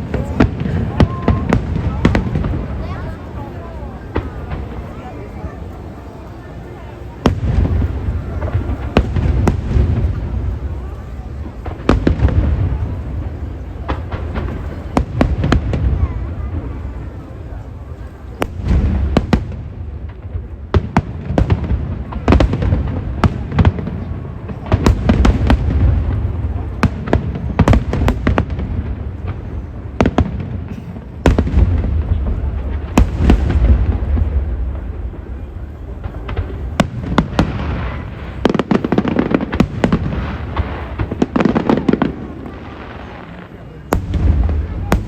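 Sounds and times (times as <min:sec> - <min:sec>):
fireworks bangs and cracks: 0:00.0 - 0:45.0
low rumble of booms: 0:18.4 - 0:38.5, 0:43.9 - 0:45.0.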